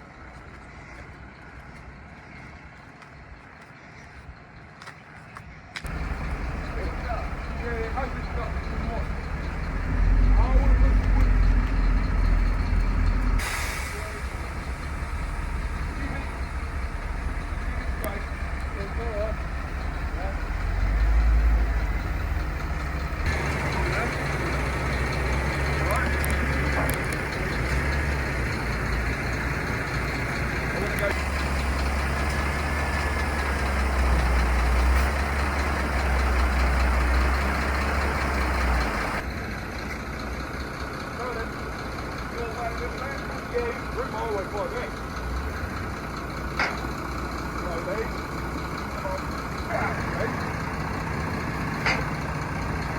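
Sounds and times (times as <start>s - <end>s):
truck engine rumbling: 0.0s - 52.9s
compressed air hissing: 13.4s - 14.5s.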